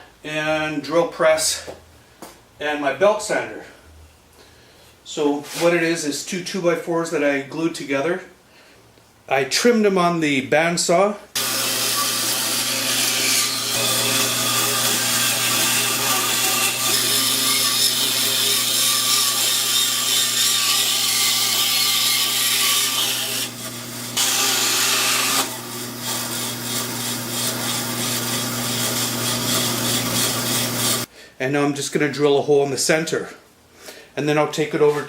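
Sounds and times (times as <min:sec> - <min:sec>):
bandsaw motor hum: 0:11.4 - 0:31.1
saw blade rasping through wood: 0:11.4 - 0:31.1.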